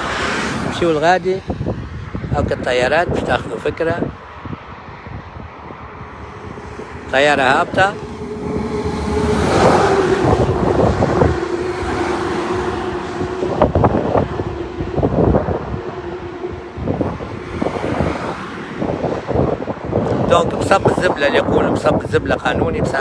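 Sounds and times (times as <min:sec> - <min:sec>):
wind buffeting microphone: 0:00.0 - 0:23.0
jet airliner landing: 0:05.5 - 0:23.0.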